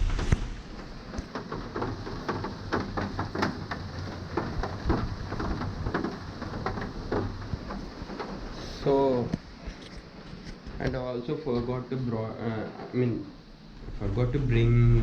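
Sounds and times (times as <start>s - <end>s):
heavy rain: 0.0s - 10.5s.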